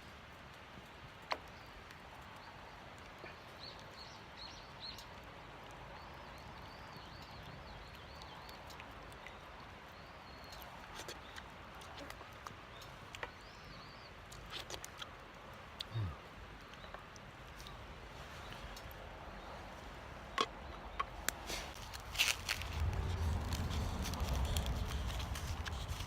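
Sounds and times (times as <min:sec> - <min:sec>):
small birds chirping: 0:01.2 - 0:26.0
wood fire crackling: 0:16.5 - 0:26.0.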